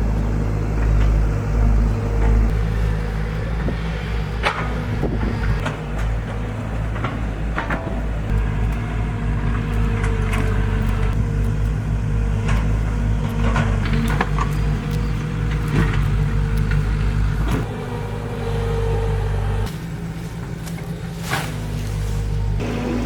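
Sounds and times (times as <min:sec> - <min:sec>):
engine running steadily: 0:00.0 - 0:23.0
scattered clicks and knocks: 0:03.6 - 0:17.7.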